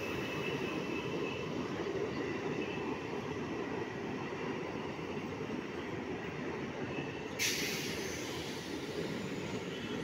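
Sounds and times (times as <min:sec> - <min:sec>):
train wheels rumbling on track: 0:00.0 - 0:10.0
short sudden hiss: 0:07.4 - 0:08.7.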